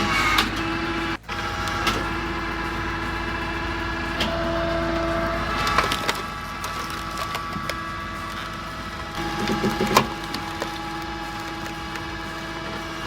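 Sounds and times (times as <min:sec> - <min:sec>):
wood splitter running: 0:00.0 - 0:13.0
logs cracking and splintering: 0:05.5 - 0:13.0.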